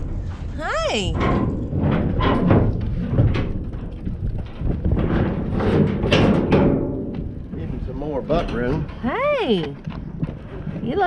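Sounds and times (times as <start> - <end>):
bull knocking in metal trailer: 0.0 - 8.9
wind on microphone: 0.0 - 11.0.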